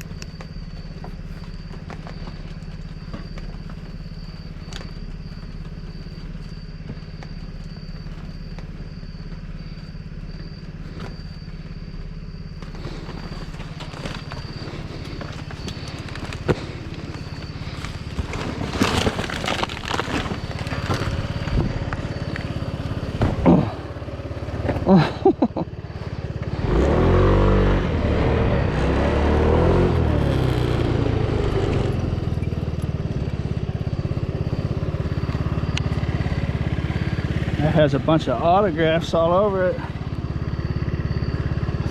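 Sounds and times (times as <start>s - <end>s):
objects rustling and clattering: 0.0s - 23.8s
vehicle engine idling: 0.0s - 41.9s.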